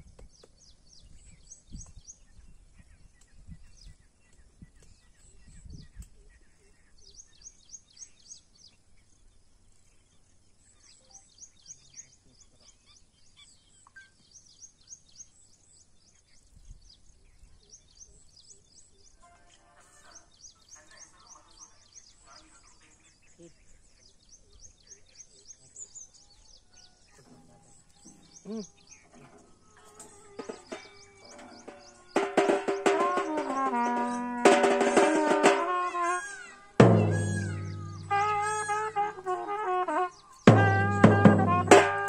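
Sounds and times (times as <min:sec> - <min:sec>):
bird chirping: 0:00.0 - 0:19.4, 0:20.1 - 0:42.0
low thumps: 0:36.8 - 0:39.3, 0:40.5 - 0:42.0.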